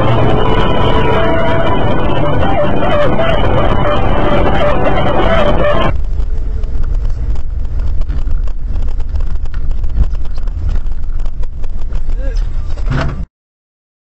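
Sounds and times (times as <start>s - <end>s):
bright loud sound: 0.0s - 5.9s
car driving rumble: 0.0s - 13.2s.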